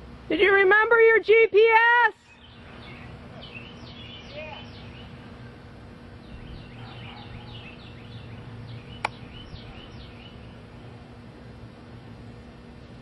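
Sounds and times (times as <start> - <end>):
birds chirping: 2.2 - 12.5
steady low rumble: 2.2 - 13.0
sharp click: 9.0 - 9.2.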